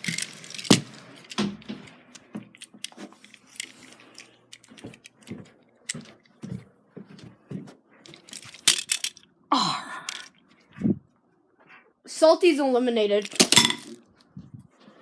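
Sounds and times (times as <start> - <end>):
toy train clattering down stairs: 0.0 - 1.8, 8.1 - 9.2.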